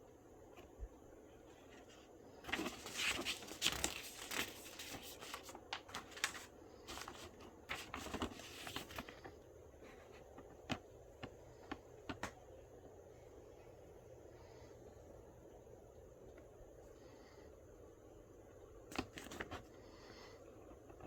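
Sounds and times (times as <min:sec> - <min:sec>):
packaging crinkling and rustling: 0:01.7 - 0:09.3.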